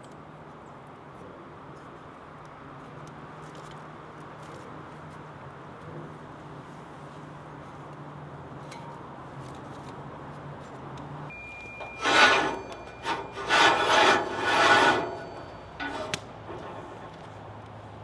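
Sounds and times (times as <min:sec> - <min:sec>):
rough rasping strokes: 0:11.8 - 0:17.0.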